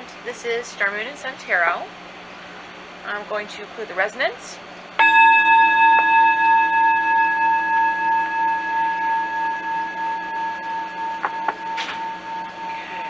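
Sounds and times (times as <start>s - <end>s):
singing bowl ringing: 5.0s - 13.0s.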